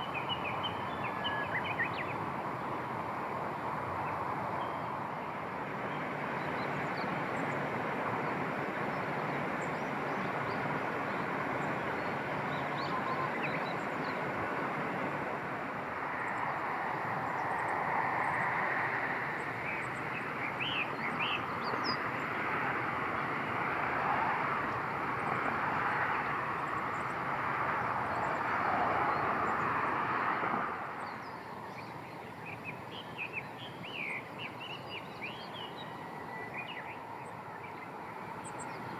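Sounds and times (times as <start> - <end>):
steady rushing noise: 0.0 - 38.9.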